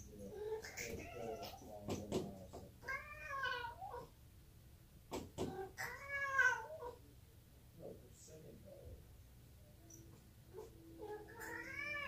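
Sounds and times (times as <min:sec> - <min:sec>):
cat meowing: 0:00.2 - 0:01.8, 0:02.8 - 0:04.1, 0:05.4 - 0:07.0, 0:10.6 - 0:12.0
cat knocking on door: 0:01.8 - 0:02.7, 0:05.1 - 0:05.7.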